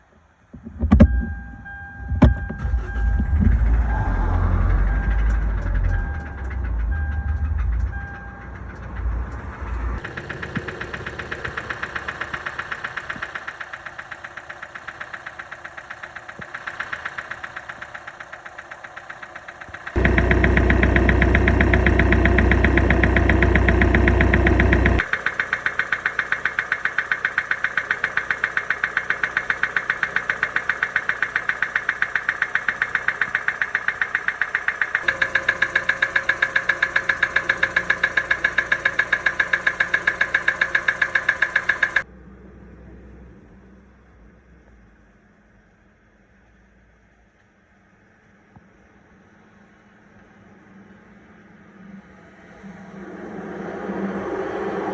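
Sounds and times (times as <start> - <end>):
car engine knocking: 0.5 - 42.1.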